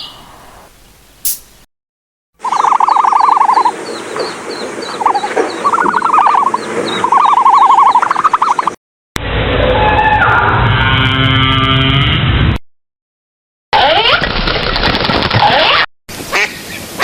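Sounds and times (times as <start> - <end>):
short high chirps: 0.0 - 0.2, 1.3 - 1.5
fast pulsing animal trill: 2.4 - 3.8, 4.8 - 8.8.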